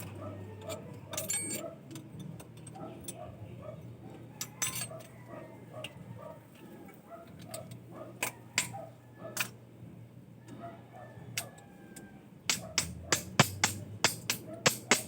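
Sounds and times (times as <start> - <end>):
sharp metallic clicks: 12.5 - 15.0
steady low hum: 12.5 - 15.0.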